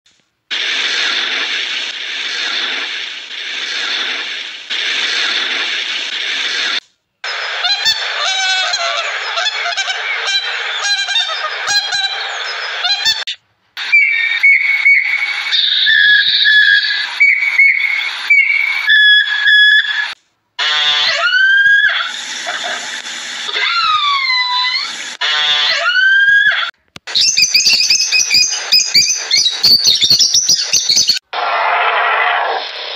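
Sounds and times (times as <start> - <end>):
animal calls gliding in pitch: 23.5 - 30.0.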